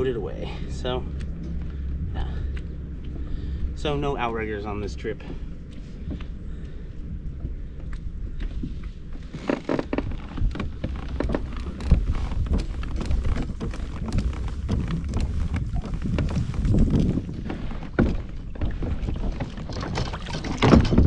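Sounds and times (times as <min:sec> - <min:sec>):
wind buffeting microphone: 0:10.1 - 0:21.0
water splashes: 0:13.0 - 0:21.0.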